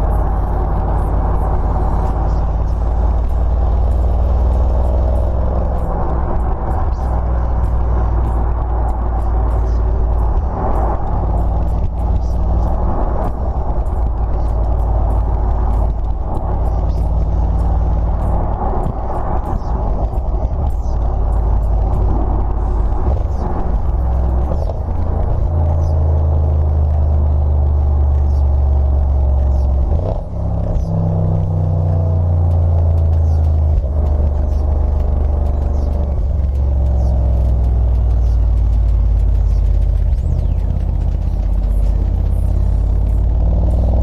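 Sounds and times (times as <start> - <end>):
car engine deep rumble: 0.0 - 44.0.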